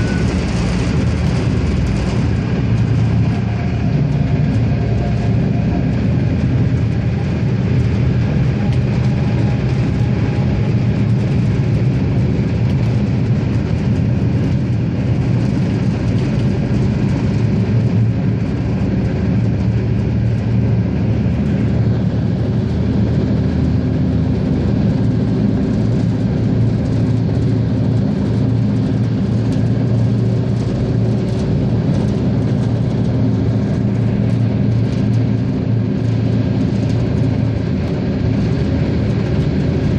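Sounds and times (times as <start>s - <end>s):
diesel engine droning: 0.0s - 39.9s
wheels running on track: 0.0s - 39.9s.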